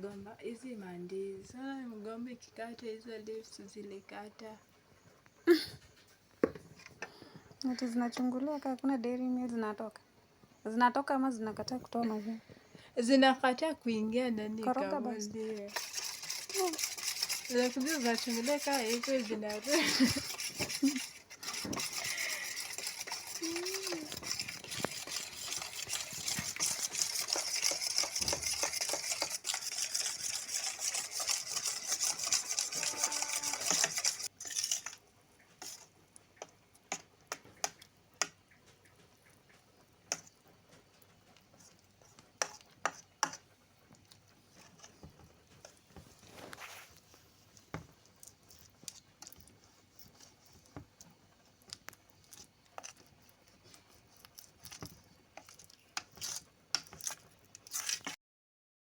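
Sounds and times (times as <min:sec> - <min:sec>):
food sizzling in a pan: 0:15.5 - 0:38.4.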